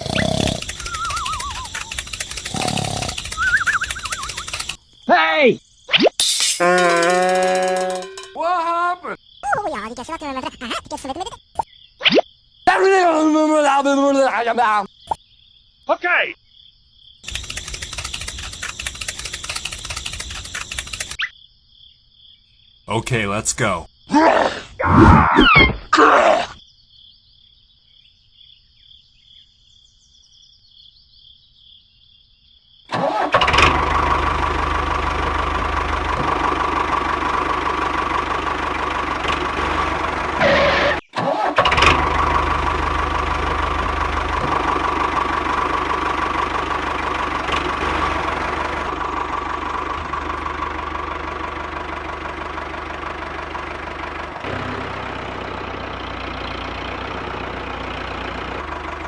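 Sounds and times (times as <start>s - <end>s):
small motor whining with gear noise: 0.0s - 4.8s, 17.2s - 21.2s, 32.9s - 52.4s.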